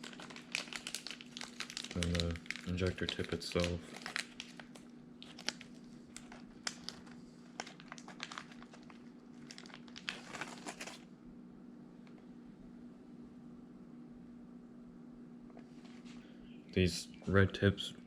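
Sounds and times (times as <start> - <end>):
plastic packaging rustling: 0.0 - 11.1
faint steady hum: 0.0 - 18.0.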